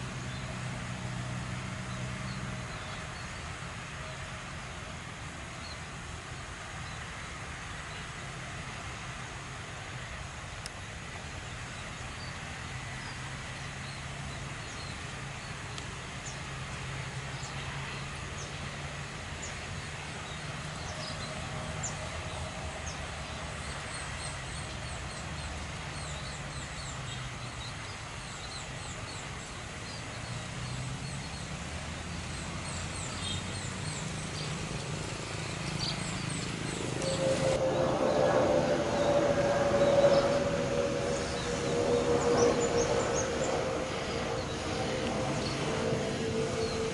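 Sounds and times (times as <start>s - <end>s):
distant jet engines rumbling: 30.9s - 46.9s.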